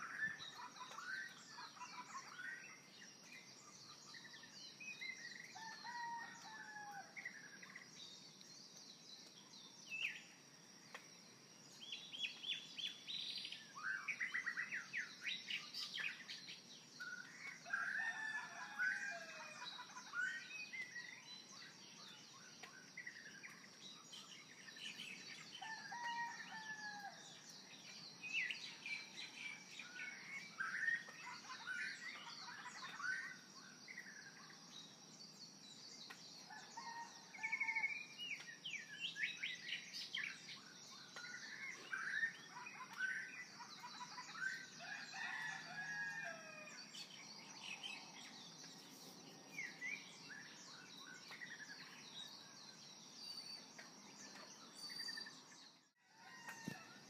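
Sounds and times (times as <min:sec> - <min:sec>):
birds chirping and calling: 0:24.2 - 0:34.6, 0:36.5 - 0:56.9.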